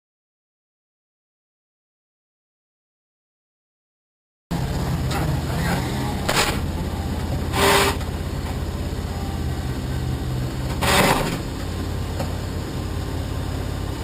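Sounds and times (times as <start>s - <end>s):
race car engine running: 4.5s - 14.0s
short loud bursts of noise: 7.5s - 8.0s, 10.8s - 11.5s.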